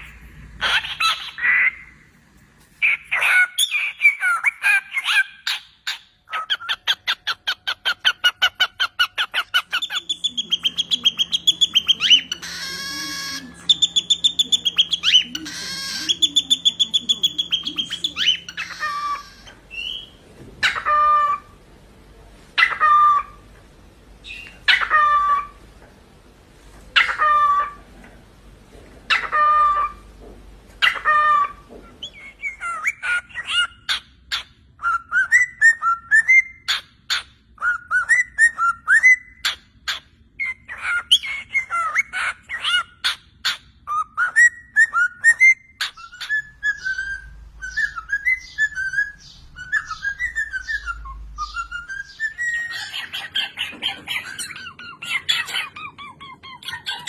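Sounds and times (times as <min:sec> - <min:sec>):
cockatiel chattering warble: 0:00.0 - 0:01.9, 0:02.8 - 0:19.5, 0:44.4 - 0:57.0
cockatiel whistled calls: 0:30.8 - 0:57.0.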